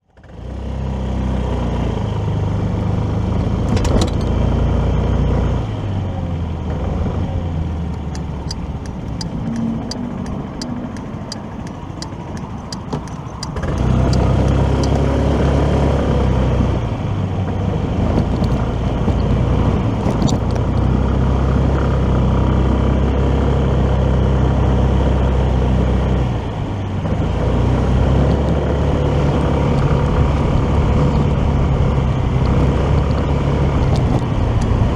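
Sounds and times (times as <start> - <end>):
road and wind noise: 0.1 - 34.9
motorcycle engine running: 6.2 - 16.3
quick ticks: 7.8 - 15.2.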